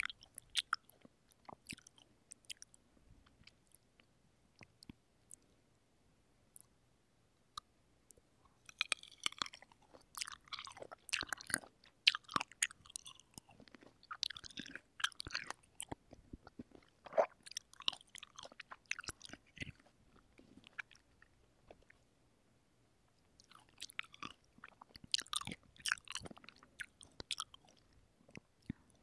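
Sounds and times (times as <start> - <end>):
chewing juicy cherries: 0.0 - 5.4, 7.5 - 22.1, 23.2 - 29.0
wet squishing and smacking: 8.7 - 22.0, 23.4 - 28.8.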